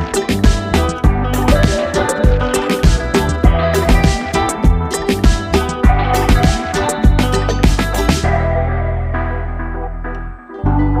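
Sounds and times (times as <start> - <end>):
electronic drum beat: 0.0 - 8.4
sustained bass line: 0.0 - 11.0.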